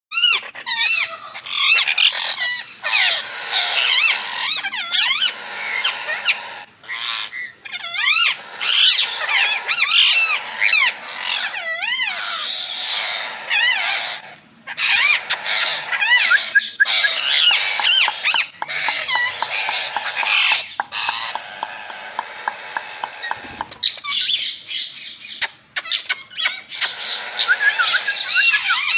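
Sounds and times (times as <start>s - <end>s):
parrot warbling chatter: 0.1s - 28.9s
parrot squawks and clicks: 13.5s - 24.4s, 25.4s - 28.9s.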